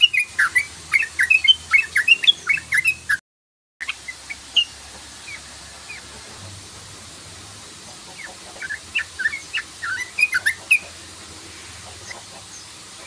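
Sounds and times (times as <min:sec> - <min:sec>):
bulbul chattering call: 0:00.0 - 0:03.2, 0:07.9 - 0:11.1.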